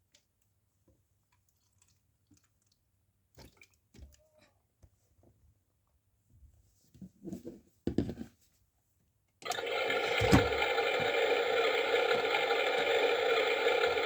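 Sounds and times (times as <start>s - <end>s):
toy washing machine motor whirring: 9.4s - 14.0s.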